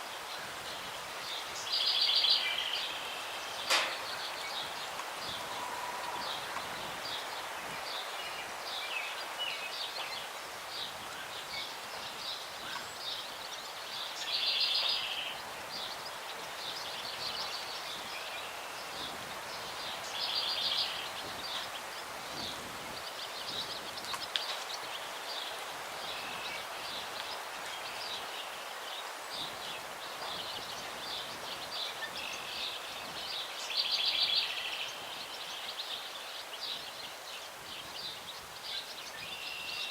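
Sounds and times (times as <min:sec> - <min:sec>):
breeze in trees: 0:00.0 - 0:39.9
small songbirds chirping: 0:00.0 - 0:39.9
loud trilled bird song: 0:12.3 - 0:19.2, 0:30.4 - 0:39.9.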